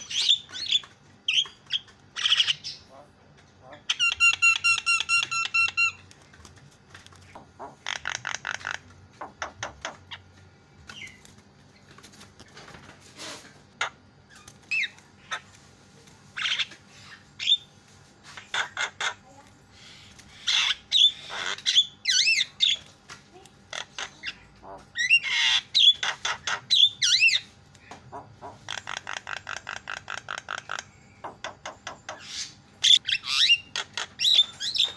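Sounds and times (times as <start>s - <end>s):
myna bird calling: 0.0s - 2.9s, 7.2s - 10.3s, 18.3s - 22.9s, 23.7s - 34.9s.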